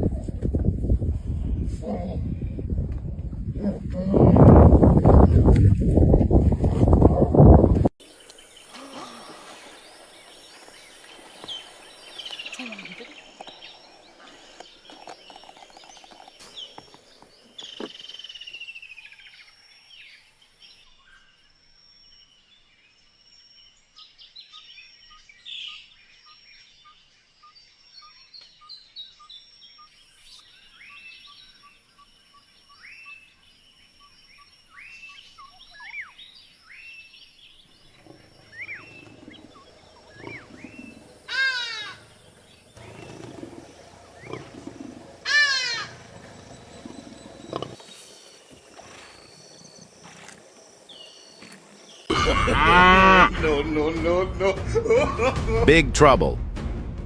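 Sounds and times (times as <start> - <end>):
birds chirping: 0.0 - 18.7, 37.3 - 54.3
bird pips: 37.9 - 52.1
rapid descending bird calls: 38.4 - 52.3.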